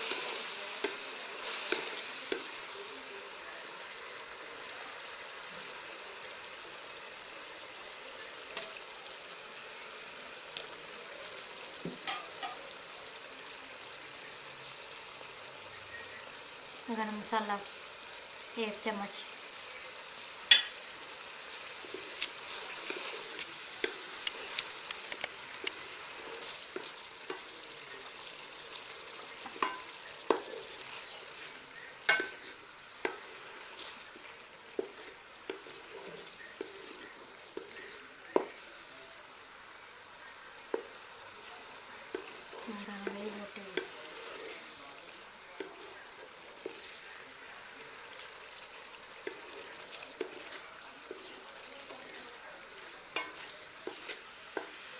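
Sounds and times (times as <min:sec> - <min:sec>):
chicken sizzling in oil: 0:00.0 - 0:54.9
spoon knocking and scraping pot: 0:11.8 - 0:12.6, 0:20.5 - 0:20.8, 0:29.4 - 0:34.0, 0:34.8 - 0:38.6, 0:49.2 - 0:51.4, 0:53.1 - 0:54.9.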